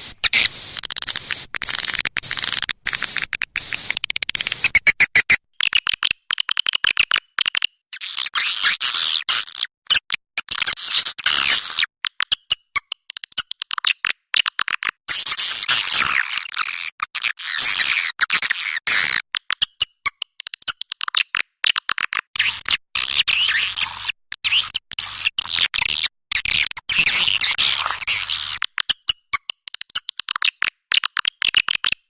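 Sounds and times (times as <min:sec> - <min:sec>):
swallows twittering: 0:00.0 - 0:04.9.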